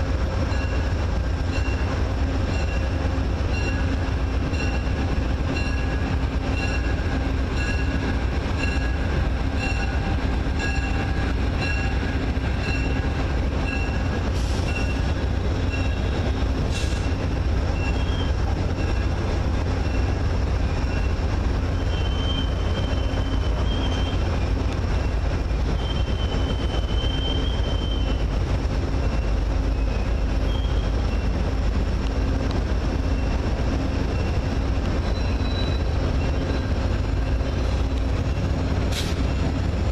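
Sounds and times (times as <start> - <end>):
train rumbling: 0.0 - 39.9
train wheels squealing: 0.5 - 31.6, 33.0 - 39.7
high ringing tone: 9.6 - 14.1.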